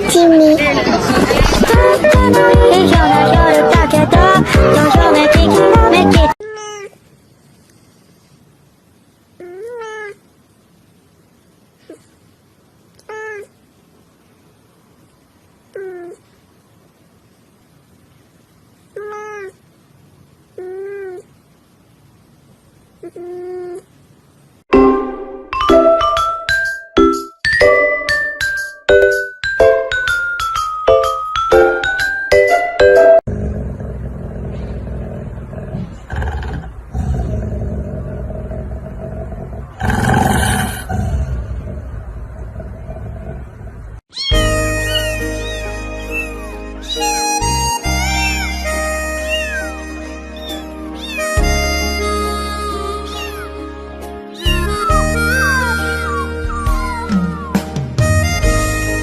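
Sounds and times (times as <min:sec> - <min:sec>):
cat meowing: 0:06.4 - 0:07.0, 0:09.4 - 0:10.2, 0:13.0 - 0:13.6, 0:15.7 - 0:16.2, 0:18.9 - 0:19.6, 0:20.6 - 0:21.3, 0:44.1 - 0:51.9, 0:53.1 - 0:53.6, 0:54.3 - 0:57.5
bright bell-like music: 0:24.8 - 0:33.2.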